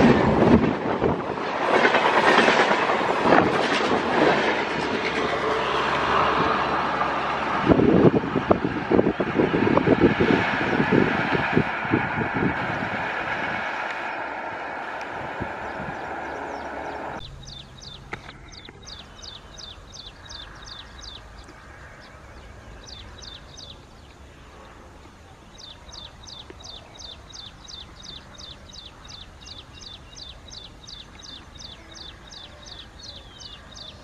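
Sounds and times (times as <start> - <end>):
train rumbling past: 0.0 - 34.0
bird chirping: 15.6 - 34.0.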